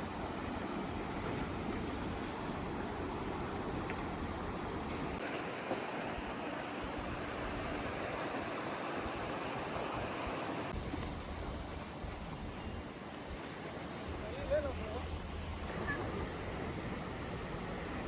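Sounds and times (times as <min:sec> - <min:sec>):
sea waves washing: 0:00.0 - 0:18.0.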